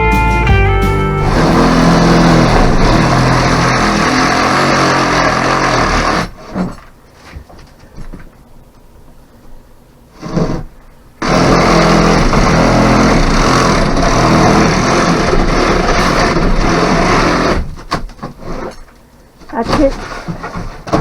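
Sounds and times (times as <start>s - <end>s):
motorised tool running: 1.2s - 6.7s, 11.2s - 17.7s.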